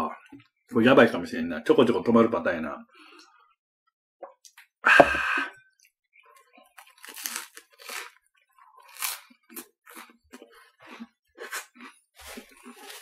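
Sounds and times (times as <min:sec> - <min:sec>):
crunching bread crust: 0:06.7 - 0:13.0.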